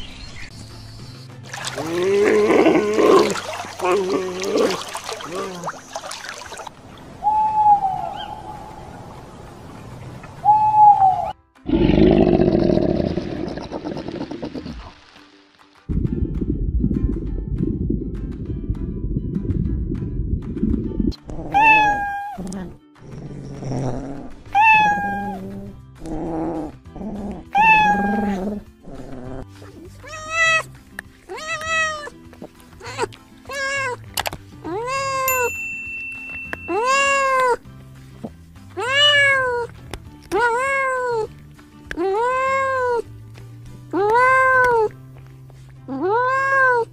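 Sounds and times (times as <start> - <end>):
background music: 0.0 - 6.8, 10.4 - 46.9
owl hooting: 7.2 - 9.1, 10.4 - 11.4
cat meowing: 21.5 - 22.5, 24.5 - 25.5, 27.5 - 28.4, 30.0 - 30.7, 31.3 - 32.2, 32.8 - 34.0, 38.8 - 39.7, 40.3 - 41.3, 46.0 - 46.9.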